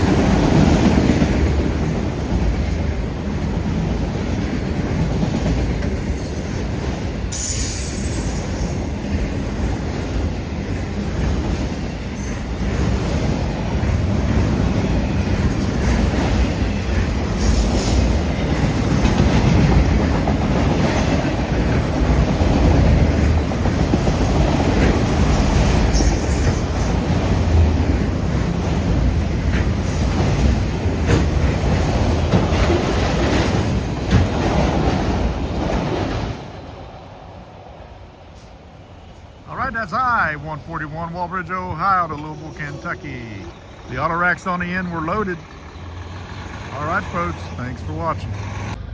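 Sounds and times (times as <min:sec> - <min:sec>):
clickety-clack over rail joints: 0:00.0 - 0:37.0, 0:39.9 - 0:48.8
train wheels rumbling: 0:00.0 - 0:48.9
high wheel squeals: 0:07.3 - 0:10.6, 0:14.9 - 0:18.4.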